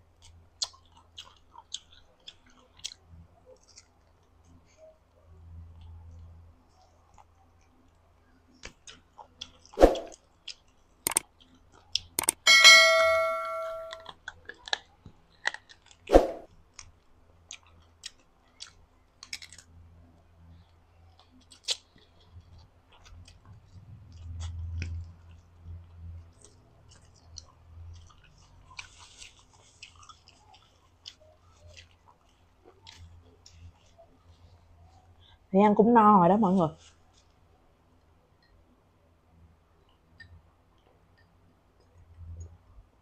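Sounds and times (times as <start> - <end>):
chewing chicken: 0.0 - 12.3, 14.0 - 35.4
wet mouth clicks: 10.0 - 11.2
bell-like chime: 12.5 - 14.0.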